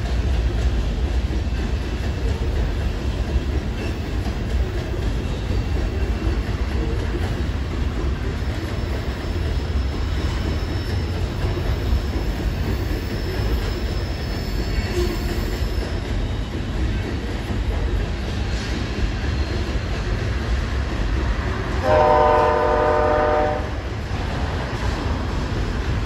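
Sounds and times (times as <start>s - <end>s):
train cars rolling on rails: 0.0s - 26.0s
high-pitched wheel squeal: 8.5s - 16.6s.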